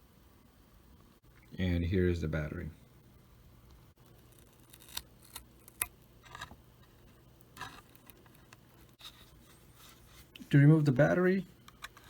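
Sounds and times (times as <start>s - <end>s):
light scrapes of small parts: 7.6s - 10.5s.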